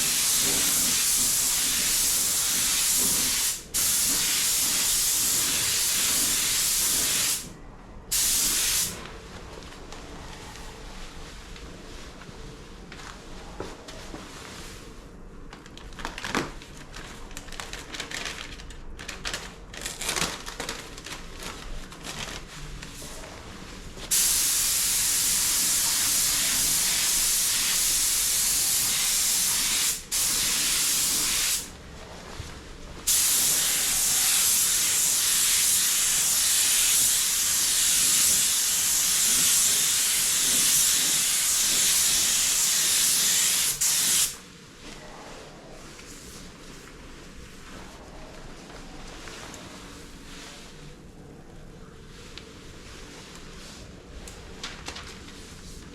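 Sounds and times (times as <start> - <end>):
paint spray gun hissing: 24.1 - 31.7, 33.1 - 44.4.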